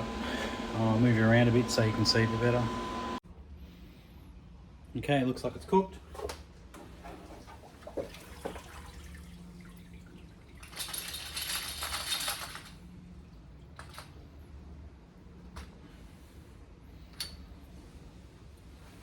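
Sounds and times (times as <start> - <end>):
liquid running and dripping: 6.8 - 11.4
small metal parts clinking: 10.6 - 13.0.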